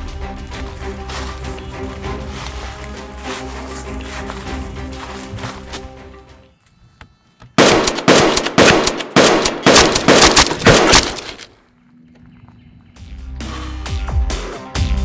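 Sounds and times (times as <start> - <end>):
music: 0.0 - 8.1, 12.9 - 15.0
rapid gunshot sound effects: 7.6 - 11.3.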